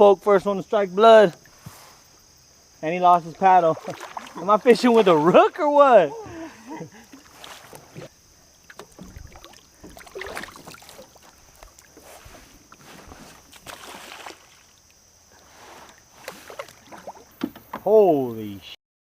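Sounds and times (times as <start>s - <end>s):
paddle splashes: 2.8s - 18.4s
water dripping: 3.1s - 5.5s, 8.4s - 12.0s
knocks against kayak hull: 17.0s - 17.9s.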